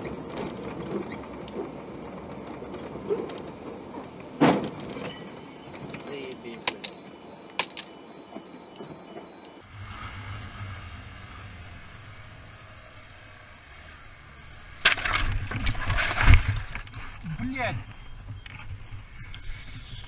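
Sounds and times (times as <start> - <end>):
car road and engine rumble: 0.0 - 20.0
repeating electronic beep: 5.0 - 9.6
clicks: 5.7 - 9.6.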